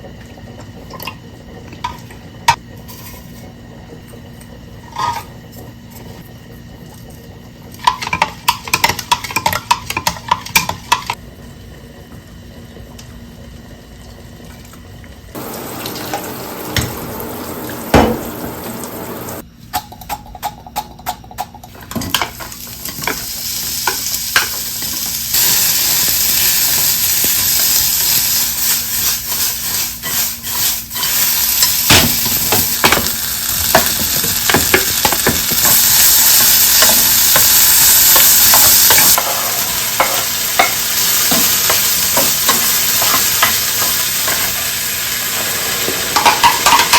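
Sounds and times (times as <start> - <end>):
food sizzling in a pan: 15.3 - 19.4, 22.2 - 46.9.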